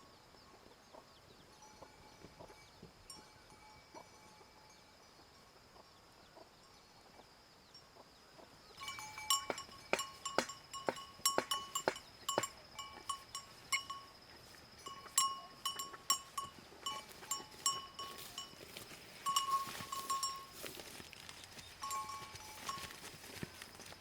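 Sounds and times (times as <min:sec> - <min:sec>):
clanking knocks with ringing tone: 0:08.8 - 0:14.0.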